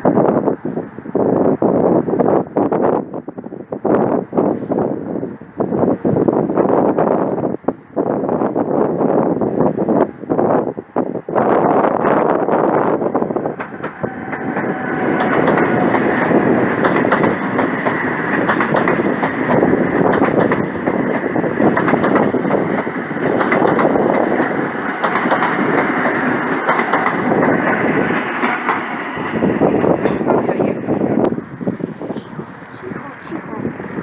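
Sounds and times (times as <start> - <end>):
train wheels clattering: 13.4 - 30.4.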